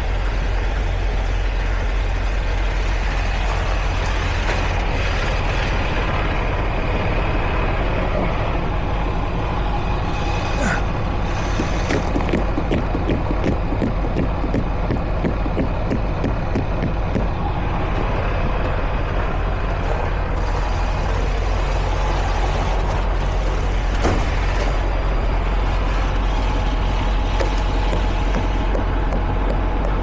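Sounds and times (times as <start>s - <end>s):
diesel truck engine running: 0.0s - 30.0s.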